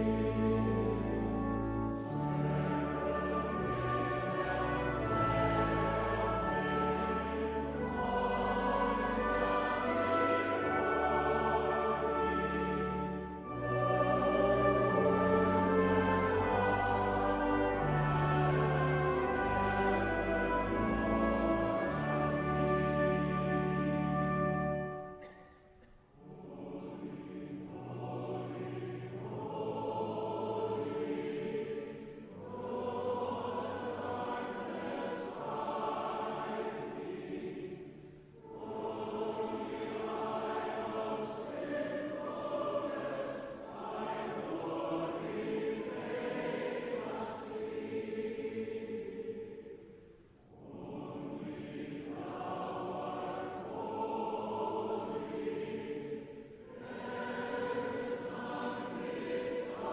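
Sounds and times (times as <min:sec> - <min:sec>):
choir singing a hymn: 0:00.0 - 0:25.6, 0:26.2 - 0:59.9.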